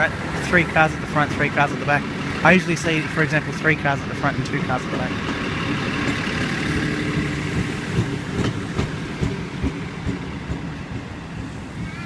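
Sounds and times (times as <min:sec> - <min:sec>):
train rumbling past: 0:00.0 - 0:12.0
wheels clacking over rail joints: 0:00.0 - 0:12.0.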